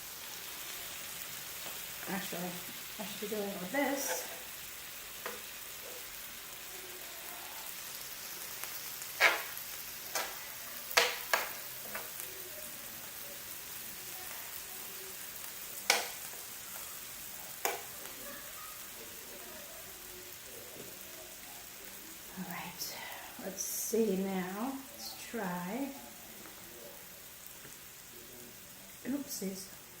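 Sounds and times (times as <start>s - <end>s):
meat sizzling on a grill: 0.0s - 30.0s
utensils clicking against grill: 15.9s - 16.4s.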